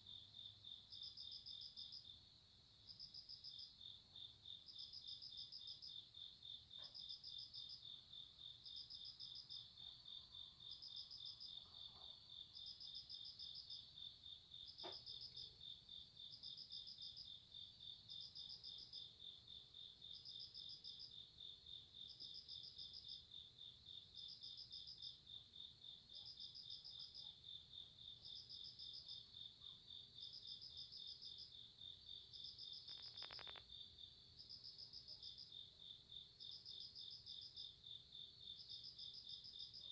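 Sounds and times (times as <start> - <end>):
crickets trilling: 32.5 - 33.9
insect chirping in short bursts: 32.5 - 33.9.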